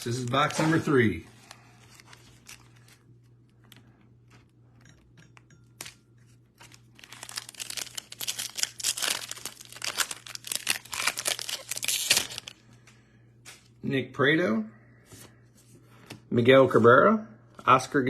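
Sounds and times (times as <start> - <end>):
plastic wrapping tearing and crinkling: 0.0 - 3.8, 6.6 - 12.6.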